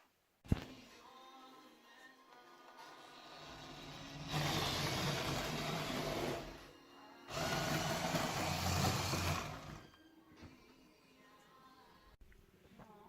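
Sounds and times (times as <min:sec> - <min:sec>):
small electric motor running: 0:07.3 - 0:09.8.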